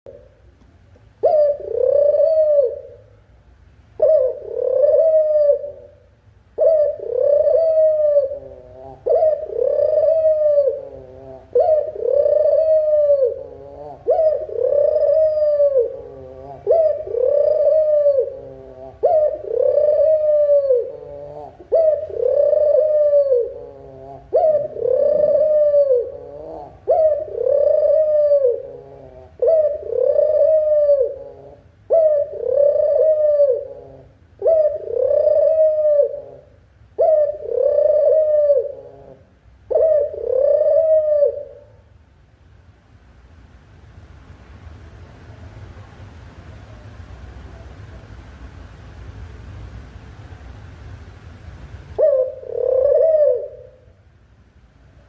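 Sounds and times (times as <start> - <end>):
dove cooing: 0.1 - 0.5, 1.2 - 3.2, 4.0 - 41.9, 52.0 - 54.0.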